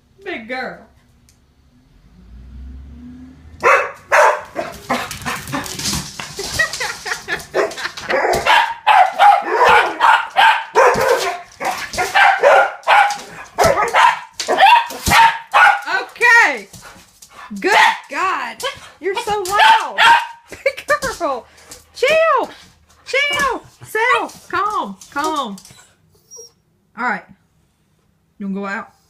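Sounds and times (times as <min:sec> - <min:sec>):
dogs barking loudly: 0:03.6 - 0:16.1, 0:17.4 - 0:20.6.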